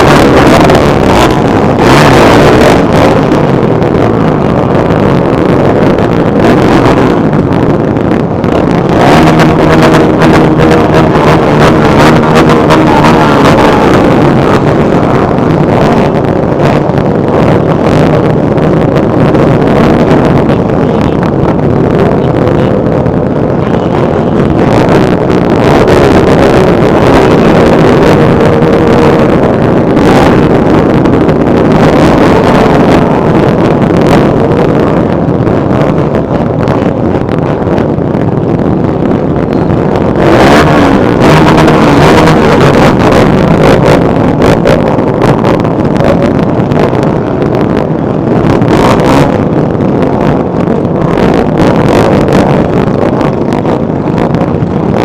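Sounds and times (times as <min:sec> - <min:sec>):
motorcycle engines running: 0:00.0 - 0:21.2
wind buffeting microphone: 0:00.0 - 0:55.0.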